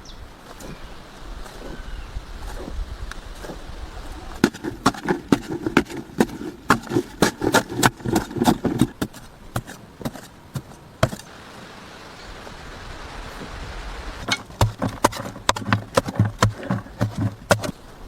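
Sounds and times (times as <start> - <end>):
sharp knocks: 14.2 - 17.8.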